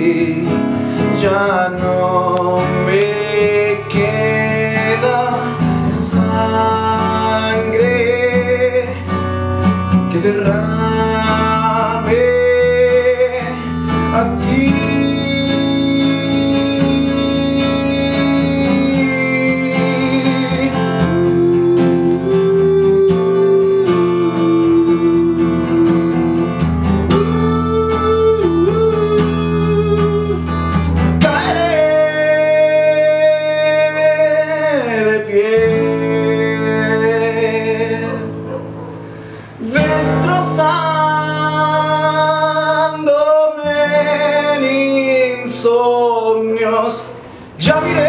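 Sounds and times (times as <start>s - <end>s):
acoustic guitar strummed: 0.0s - 48.0s
person singing long notes: 10.1s - 30.6s.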